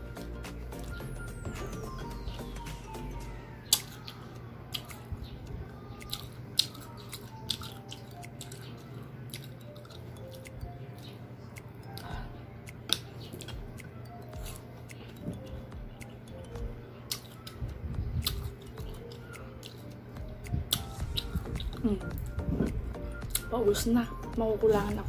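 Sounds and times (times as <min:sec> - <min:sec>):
soft background music: 0:00.0 - 0:25.0
mango crunching when chewed: 0:06.0 - 0:12.1, 0:12.7 - 0:16.3, 0:17.1 - 0:17.6, 0:18.2 - 0:23.5.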